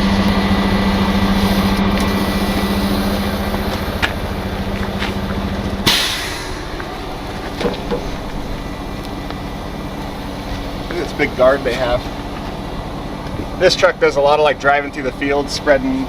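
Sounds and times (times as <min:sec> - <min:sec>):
diesel truck engine idling: 0:00.0 - 0:16.0
sharp burst of noise: 0:05.8 - 0:11.2.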